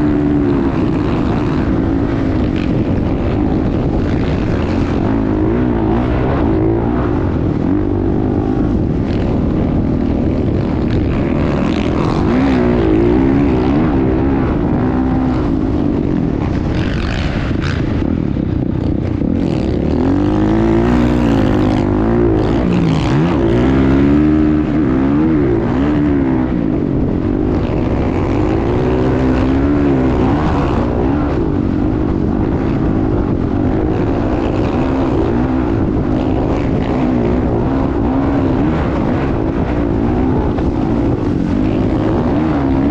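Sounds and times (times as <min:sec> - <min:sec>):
motocross bike engine revving: 0:00.0 - 0:18.2, 0:18.9 - 0:42.9.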